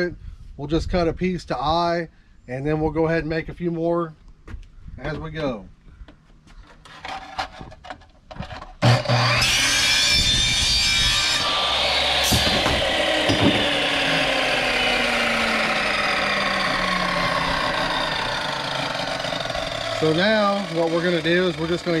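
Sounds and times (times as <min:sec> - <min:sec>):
miter saw cutting pipe: 0:08.8 - 0:22.0
pipe knocking: 0:12.3 - 0:13.7.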